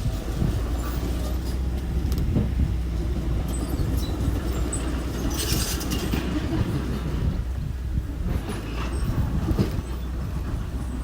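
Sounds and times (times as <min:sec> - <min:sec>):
heavy machinery diesel engine rumbling: 0:00.0 - 0:11.0
metallic clanking and squeaking: 0:03.5 - 0:06.3.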